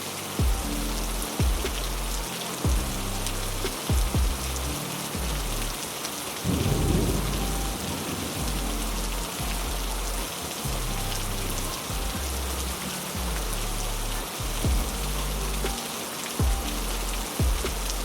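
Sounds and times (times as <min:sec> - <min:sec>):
heavy rain falling: 0:00.0 - 0:18.0
thunder rumble: 0:06.4 - 0:12.1.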